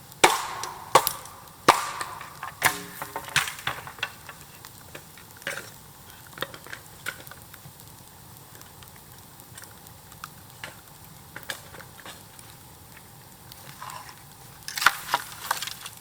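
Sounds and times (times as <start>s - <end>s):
bamboo bonfire crackling: 0.0s - 16.0s.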